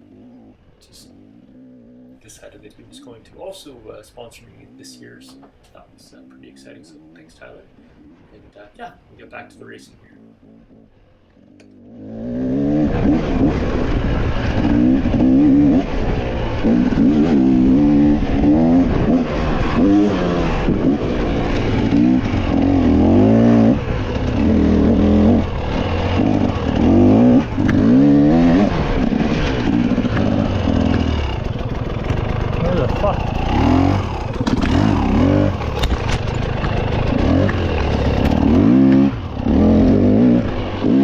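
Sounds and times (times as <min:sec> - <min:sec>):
dirt bike engine revving: 0:09.6 - 0:41.0.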